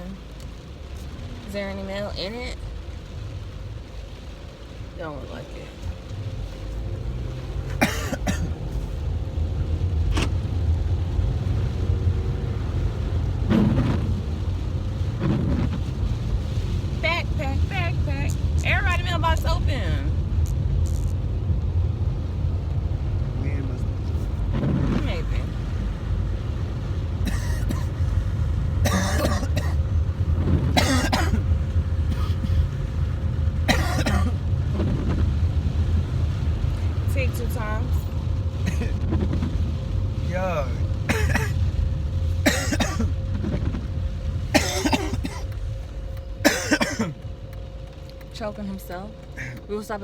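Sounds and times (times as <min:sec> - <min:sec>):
engine and road rumble: 0:00.0 - 0:50.0
person coughing: 0:07.8 - 0:08.6, 0:27.2 - 0:28.0, 0:28.8 - 0:29.8, 0:30.8 - 0:31.4, 0:32.1 - 0:32.7, 0:33.7 - 0:34.4, 0:38.6 - 0:39.0, 0:41.1 - 0:41.6, 0:42.4 - 0:43.1, 0:44.5 - 0:45.5, 0:46.4 - 0:47.2.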